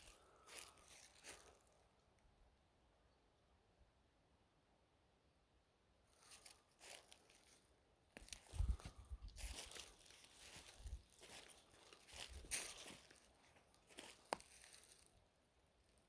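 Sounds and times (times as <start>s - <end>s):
crinkling and rustling: 8.2s - 15.2s.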